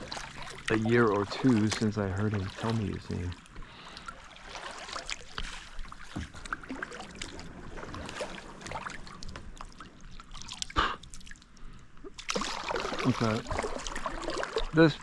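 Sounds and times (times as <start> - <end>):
paddle splashing in water: 0.0 - 11.4, 12.1 - 15.0
water dripping off paddle: 0.0 - 14.8.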